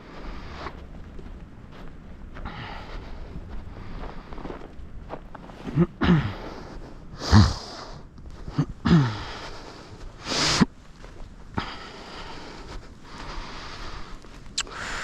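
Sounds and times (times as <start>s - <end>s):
person sniffing and puffing breath: 5.8s - 10.7s, 11.6s - 15.0s.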